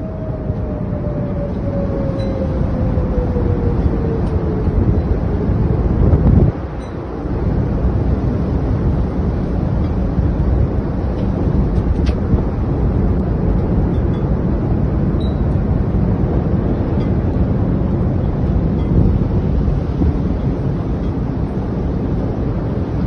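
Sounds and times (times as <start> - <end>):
strong wind on microphone: 0.0 - 23.0.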